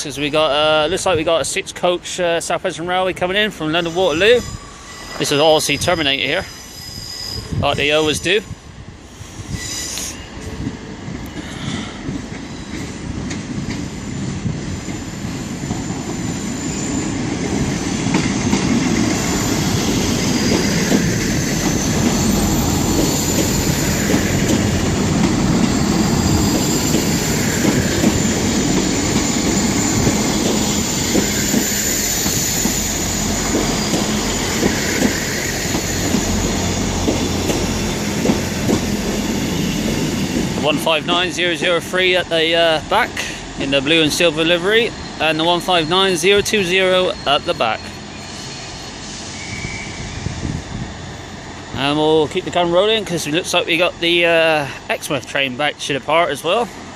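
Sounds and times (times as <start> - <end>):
diesel train rolling past: 0.0 - 56.9
high wheel squeal: 3.7 - 10.6, 14.6 - 51.1.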